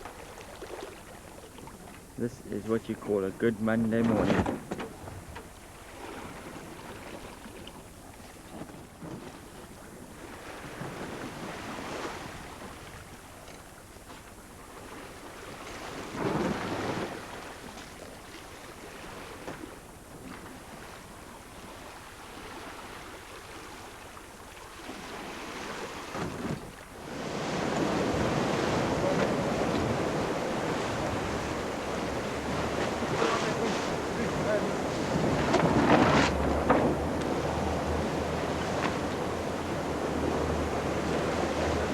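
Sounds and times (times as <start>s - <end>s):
water rushing along boat hull: 0.0s - 41.9s
wind buffeting microphone: 26.1s - 41.9s.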